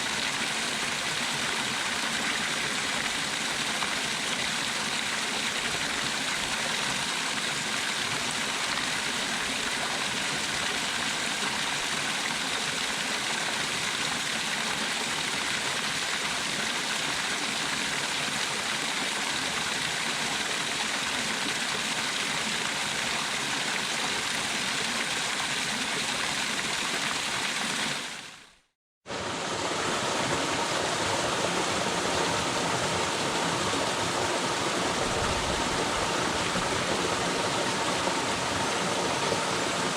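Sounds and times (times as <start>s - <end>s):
waterfall rushing: 29.1s - 39.9s.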